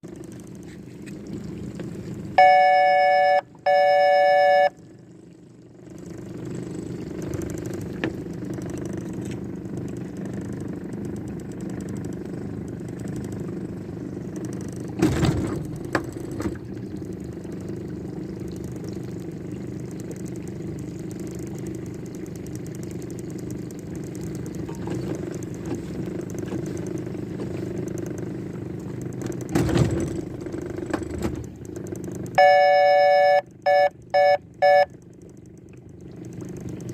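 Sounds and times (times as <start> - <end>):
low engine drone: 0.0 - 36.9
electronic tones: 2.4 - 4.8, 32.4 - 34.9.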